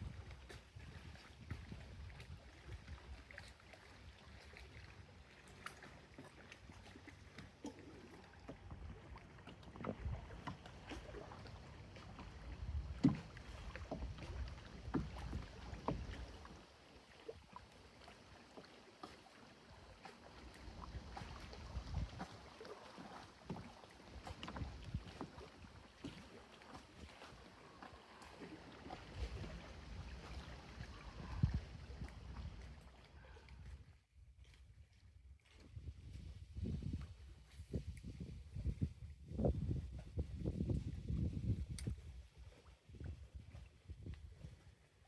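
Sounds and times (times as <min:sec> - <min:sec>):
water splashing and lapping: 0:00.0 - 0:45.0
knocks against canoe hull: 0:12.7 - 0:16.2.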